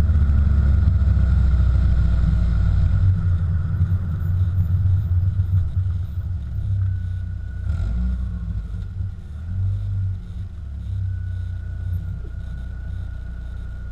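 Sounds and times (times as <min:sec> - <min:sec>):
car exhaust deep note: 0:00.0 - 0:13.9.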